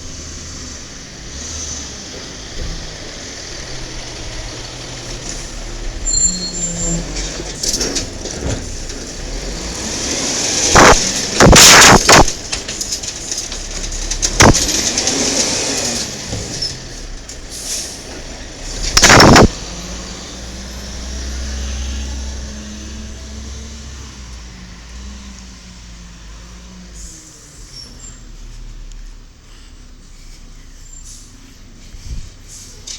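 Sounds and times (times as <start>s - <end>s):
garbage truck diesel engine: 0.0s - 32.9s
very loud sudden noises: 10.5s - 12.9s, 14.2s - 15.2s, 18.8s - 19.6s.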